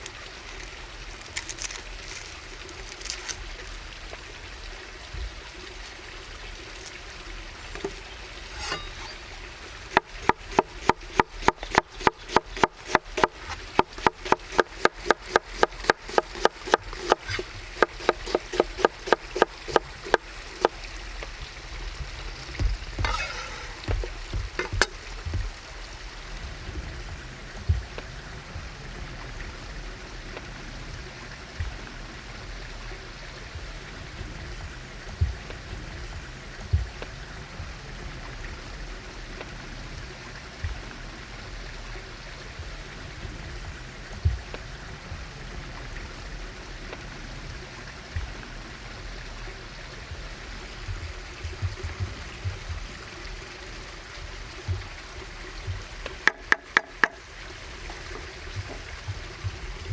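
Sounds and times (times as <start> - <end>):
knife chopping on wooden board: 9.9 - 20.8, 22.6 - 25.6.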